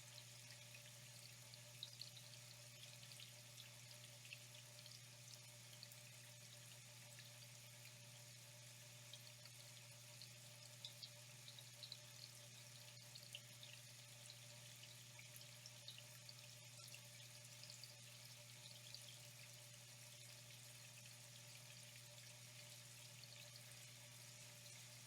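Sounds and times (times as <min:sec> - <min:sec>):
water trickling: 0:00.0 - 0:25.0.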